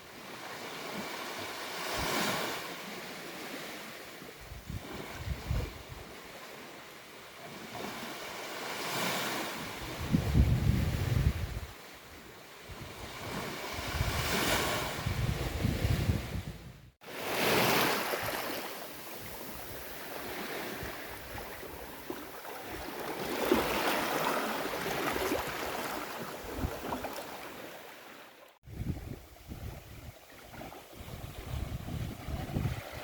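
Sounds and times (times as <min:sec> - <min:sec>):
waves breaking on beach: 0:00.0 - 0:16.4, 0:17.0 - 0:33.0
wind rumbling on microphone: 0:04.4 - 0:06.2, 0:09.6 - 0:17.0, 0:24.6 - 0:27.2, 0:28.6 - 0:33.0.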